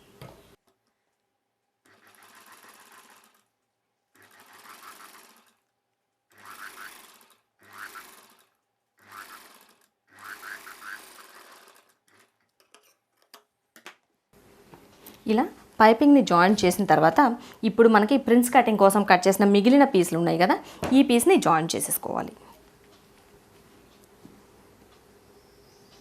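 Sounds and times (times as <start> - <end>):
sewing machine running: 1.8 - 3.5, 4.1 - 5.7, 6.3 - 12.4.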